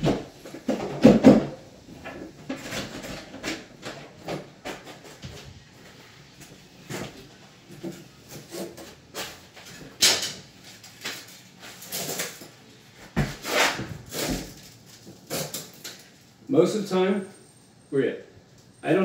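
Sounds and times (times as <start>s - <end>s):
knocks and scrapes on wooden cabinet: 0.0s - 5.5s, 13.1s - 14.5s.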